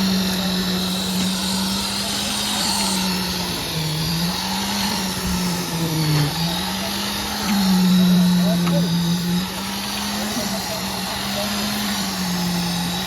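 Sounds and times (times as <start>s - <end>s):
concrete mixer engine running: 0.0s - 13.0s.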